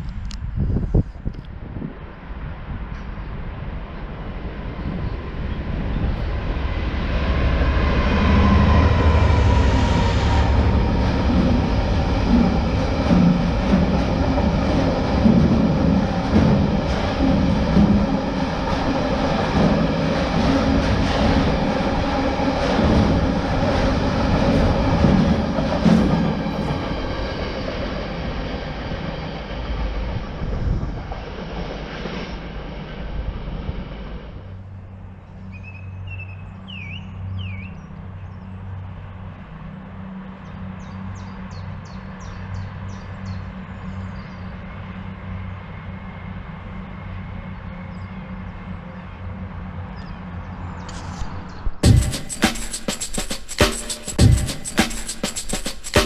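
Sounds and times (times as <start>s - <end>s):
freight train passing: 0.0s - 56.0s
bird chirps: 35.4s - 38.4s.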